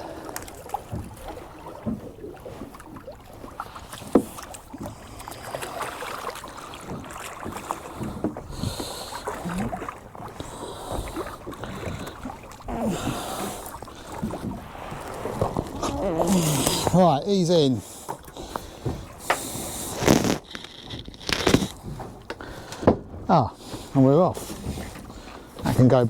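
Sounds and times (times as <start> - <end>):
knocks and clatter on boat hull: 0.4 - 2.8, 3.9 - 5.1, 6.7 - 12.7, 14.0 - 16.0, 18.1 - 19.7, 20.4 - 26.0.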